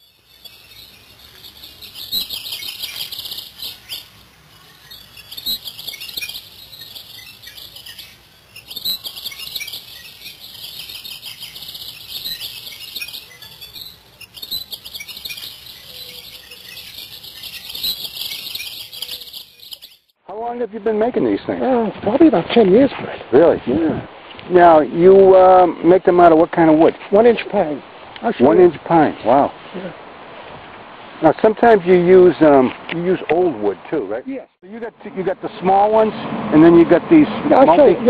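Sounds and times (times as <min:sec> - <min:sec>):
songbird warbling: 0:00.0 - 0:20.1.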